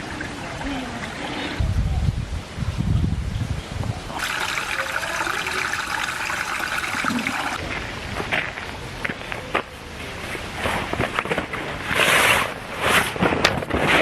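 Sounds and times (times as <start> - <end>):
running water hiss: 4.1 - 7.6.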